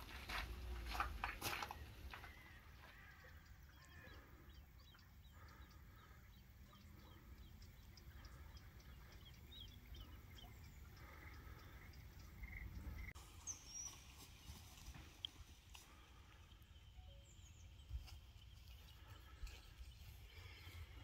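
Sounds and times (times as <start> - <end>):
faint birds chirping: 0.0 - 21.0.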